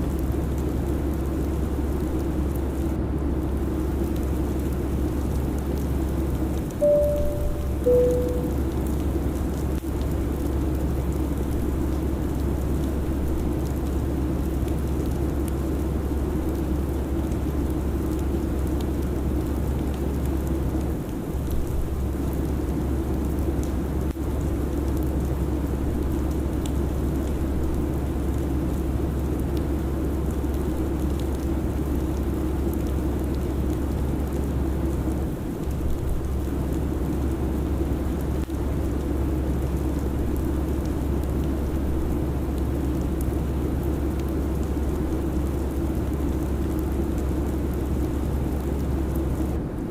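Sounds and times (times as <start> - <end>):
faint ticks: 6.6 - 10.5
airliner engine drone: 6.8 - 8.9.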